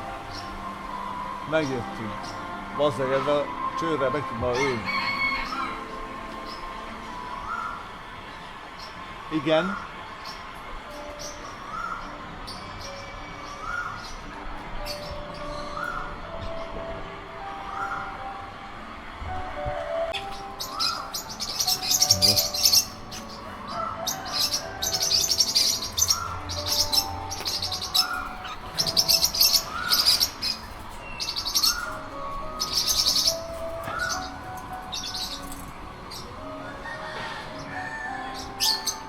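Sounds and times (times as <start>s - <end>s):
rapid high bird chirping: 20.2s - 36.2s.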